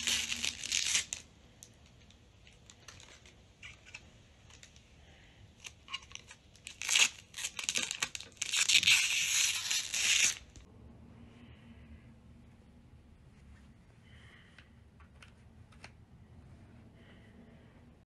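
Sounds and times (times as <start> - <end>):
packaging crinkling and tearing: 0.0 - 1.3, 5.6 - 10.7.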